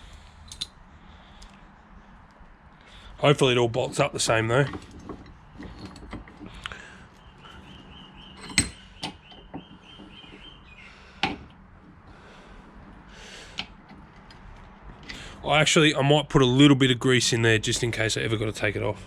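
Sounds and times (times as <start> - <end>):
metal parts clicking and knocking: 3.9 - 6.7, 7.5 - 10.5.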